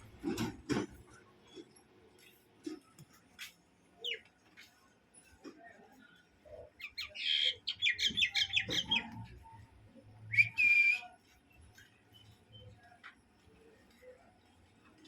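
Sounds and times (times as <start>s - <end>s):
bird chattering calls: 6.8s - 9.1s
bird whistled note: 10.3s - 11.2s.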